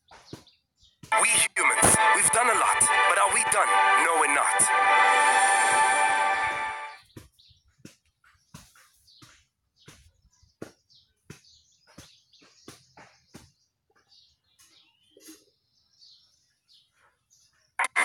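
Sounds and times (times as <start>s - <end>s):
small birds chirping: 8.3s - 17.8s.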